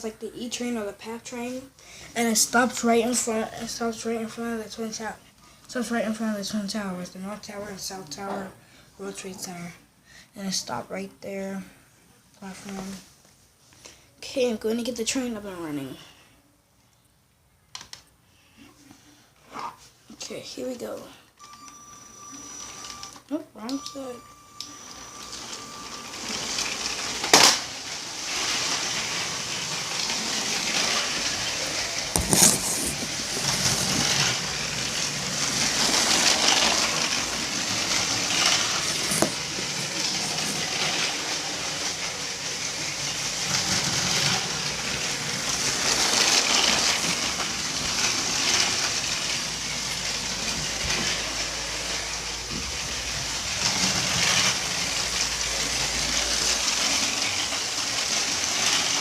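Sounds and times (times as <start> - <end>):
toy train motor whirring: 21.4 - 23.2, 24.6 - 59.0
plastic wheels rattling on track: 26.2 - 59.0.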